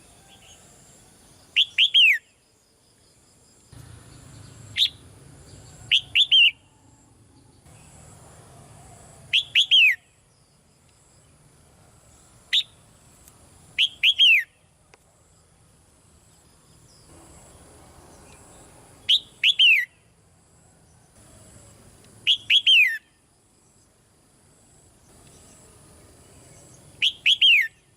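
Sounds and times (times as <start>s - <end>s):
bird calling downward notes: 5.8s - 7.2s, 9.2s - 10.1s, 19.1s - 20.0s, 22.2s - 23.0s.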